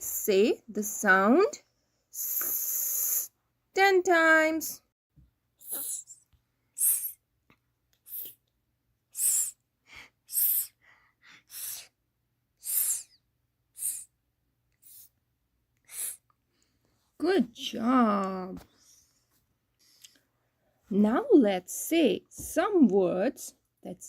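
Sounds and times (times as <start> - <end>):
person making hissing s sounds: 2.1 - 3.3, 5.6 - 6.2, 6.8 - 7.2, 8.0 - 8.4, 9.1 - 12.0, 12.6 - 14.2, 14.8 - 15.2, 15.8 - 16.3.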